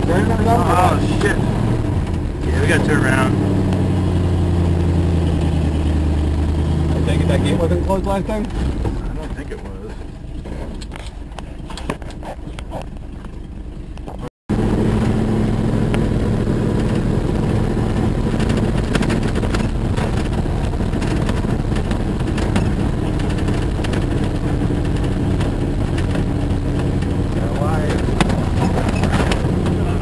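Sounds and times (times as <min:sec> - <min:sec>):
jeep engine running: 0:00.0 - 0:30.0
rattles and knocks: 0:18.3 - 0:30.0.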